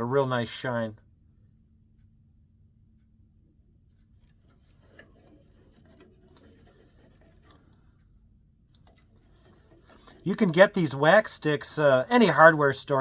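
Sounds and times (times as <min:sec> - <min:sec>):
scratchy rubbing of wax on wood: 0:04.2 - 0:07.8, 0:08.9 - 0:12.6.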